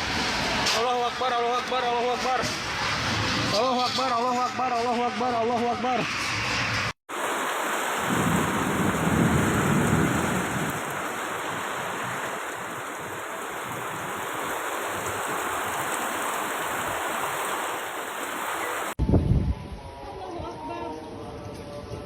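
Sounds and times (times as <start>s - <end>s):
rushing roar of strong wind: 4.8s - 22.0s.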